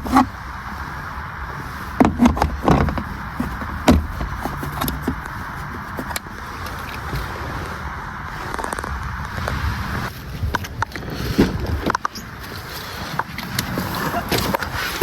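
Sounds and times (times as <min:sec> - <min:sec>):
vehicle rumble with hiss: 0:00.0 - 0:15.0
sharp knocks and clunks: 0:02.0 - 0:06.2.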